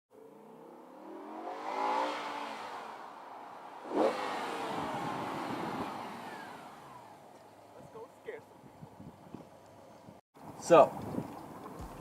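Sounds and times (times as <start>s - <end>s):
engine revving: 0.2s - 7.4s.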